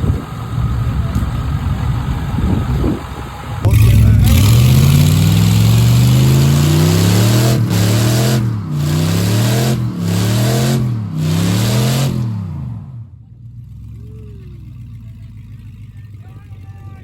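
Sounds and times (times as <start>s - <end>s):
spinning tyres hissing: 0.0s - 12.6s
truck engine revving hard: 0.0s - 14.6s.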